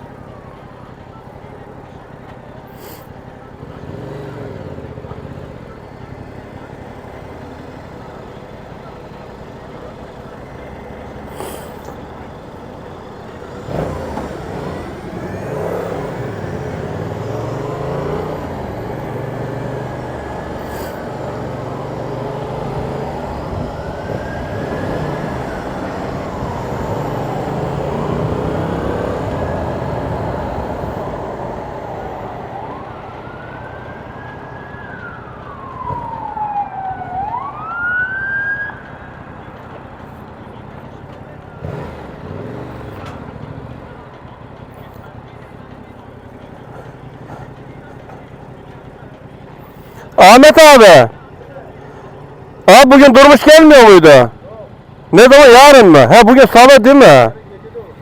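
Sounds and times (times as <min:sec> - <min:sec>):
motorcycle engine shifting gears: 0:02.2 - 0:32.2, 0:39.6 - 0:50.2.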